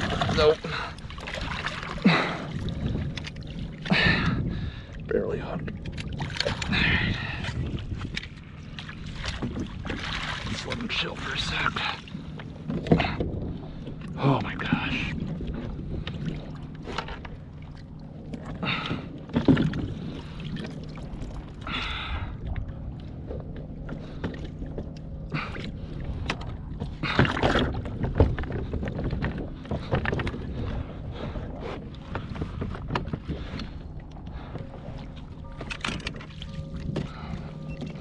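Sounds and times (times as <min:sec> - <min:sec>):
water rumble: 0:00.0 - 0:38.0
wind: 0:00.0 - 0:38.0
knocks and thumps on kayak: 0:12.6 - 0:13.5, 0:18.4 - 0:20.7, 0:26.2 - 0:33.8.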